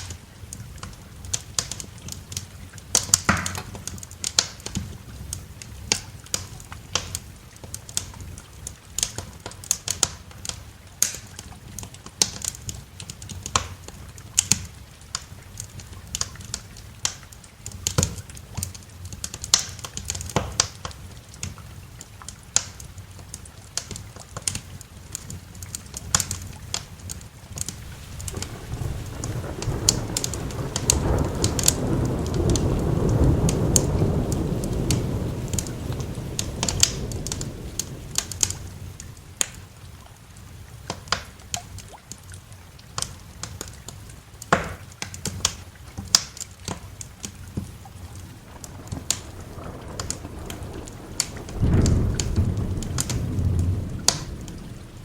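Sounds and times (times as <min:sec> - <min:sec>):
soft hiss of rain: 0:00.0 - 0:55.0
wood fire crackling: 0:00.0 - 0:55.0
low roll of thunder: 0:27.7 - 0:40.0, 0:47.6 - 0:55.0.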